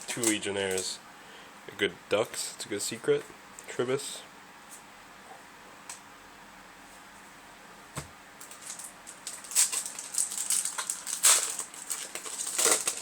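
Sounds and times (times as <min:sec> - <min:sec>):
foil pack crinkling and tearing: 0:08.4 - 0:13.0.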